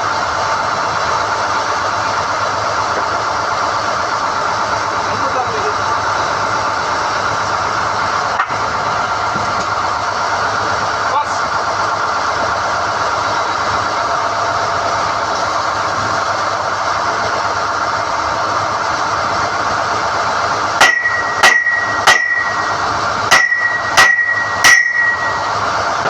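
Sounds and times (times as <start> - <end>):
drilling rig running: 0.0 - 26.0
hammer blows on steel: 20.8 - 25.4.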